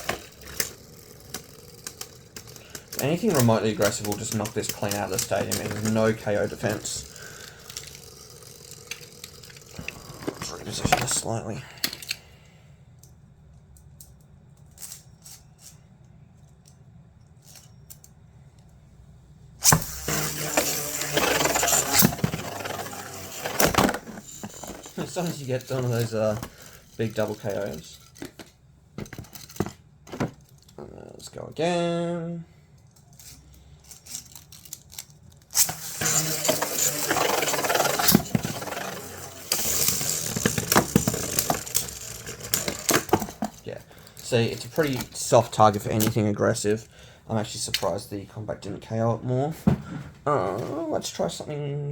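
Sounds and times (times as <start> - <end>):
spinning tops clattering: 0.0 - 10.8, 19.6 - 28.2, 35.5 - 45.3.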